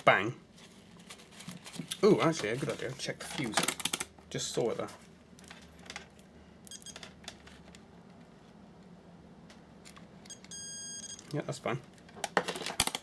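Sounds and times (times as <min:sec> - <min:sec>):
multimeter beep: 0:06.6 - 0:07.0, 0:10.3 - 0:11.3.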